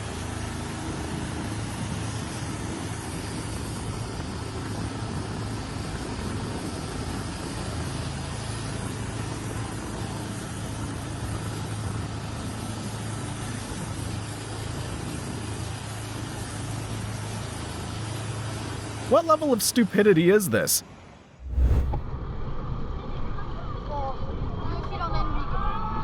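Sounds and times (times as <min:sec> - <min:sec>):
constant wash of noise: 0:21.4 - 0:22.0.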